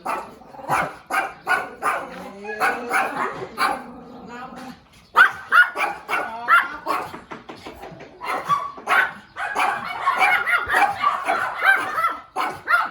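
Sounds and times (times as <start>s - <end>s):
small puppy barking and yipping: 8.2s - 12.9s.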